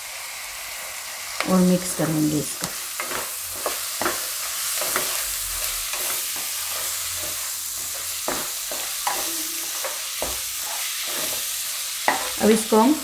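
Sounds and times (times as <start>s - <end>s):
vegetables sizzling in a pan: 0.0s - 13.0s
metal spatula scraping a pan: 3.0s - 12.5s.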